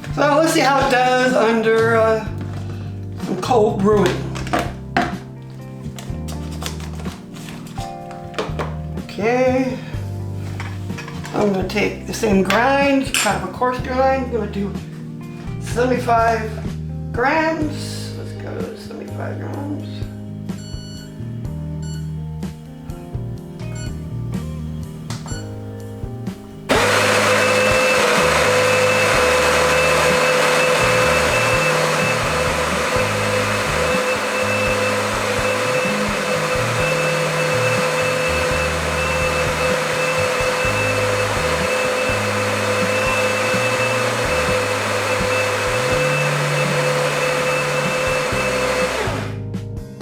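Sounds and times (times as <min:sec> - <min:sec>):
electric coffee grinder grinding: 0:05.8 - 0:08.8, 0:26.7 - 0:49.4.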